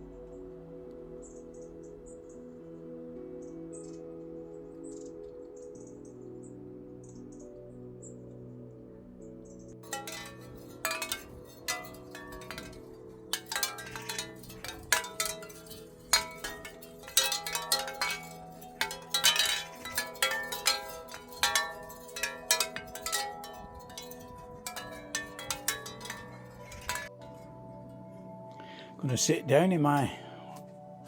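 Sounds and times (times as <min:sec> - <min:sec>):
chimes jangling: 0:09.8 - 0:27.1.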